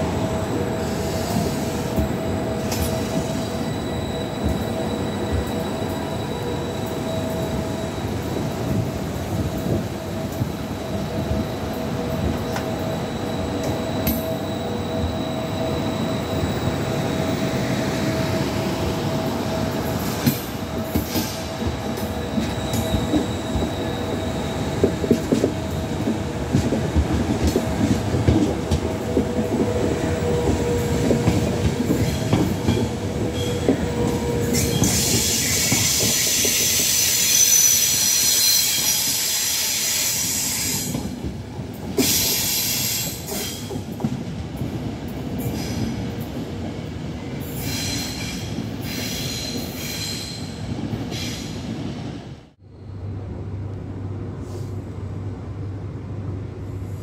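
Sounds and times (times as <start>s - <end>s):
train wheels rumbling on rail: 0.0s - 57.0s
high squeal of wheels: 2.6s - 8.8s, 12.2s - 26.0s, 30.2s - 41.0s, 42.0s - 43.7s, 47.5s - 51.7s.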